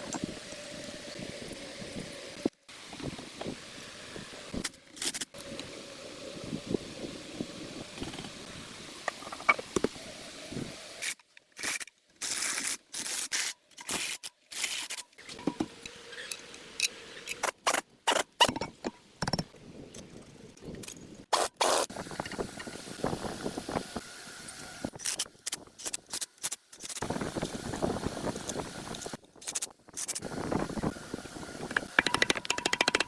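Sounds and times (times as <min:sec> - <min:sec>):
scraping clicking and knocking parts: 0:25.0 - 0:27.0, 0:31.6 - 0:33.0.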